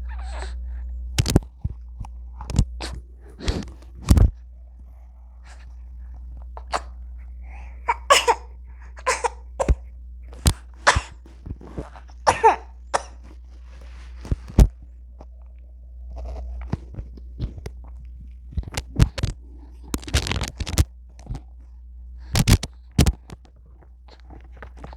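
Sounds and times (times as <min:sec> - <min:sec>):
steady low hum: 0:00.0 - 0:24.9
baby vocal sounds: 0:06.6 - 0:09.8
baby coughing: 0:06.6 - 0:09.9, 0:10.8 - 0:11.2, 0:11.9 - 0:13.3.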